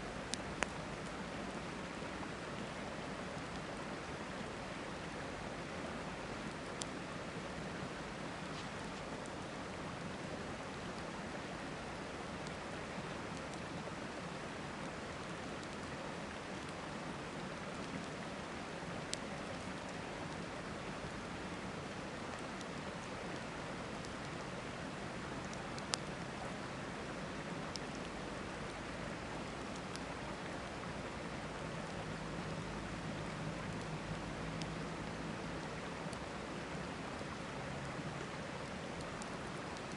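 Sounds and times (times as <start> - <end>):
campfire crackling: 0.0 - 39.9
river flowing: 0.0 - 39.9.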